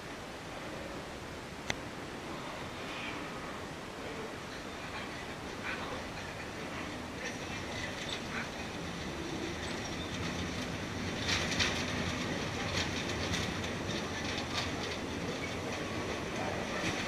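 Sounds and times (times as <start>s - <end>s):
railway carriage rumble: 0.0s - 17.0s
wheels clacking over rail joints: 4.4s - 17.0s.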